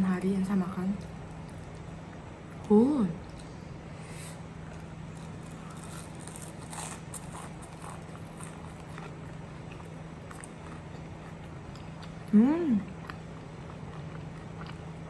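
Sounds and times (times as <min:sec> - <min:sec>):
crunchy biting and chewing: 0:04.7 - 0:12.3, 0:12.9 - 0:15.0.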